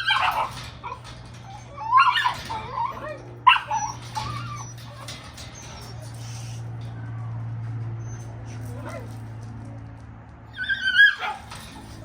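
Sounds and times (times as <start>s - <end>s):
puppies whining and yelping: 0.0s - 6.6s, 8.0s - 9.0s, 10.5s - 12.0s.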